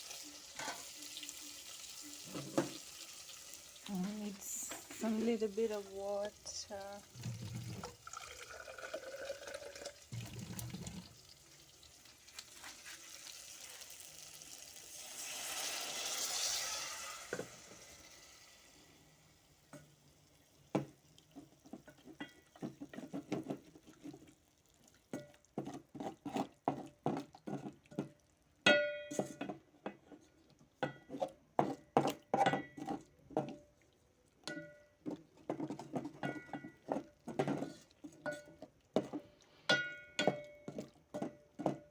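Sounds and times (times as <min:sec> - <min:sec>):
water sizzling in hot pot: 0:00.0 - 0:30.2, 0:34.5 - 0:41.9.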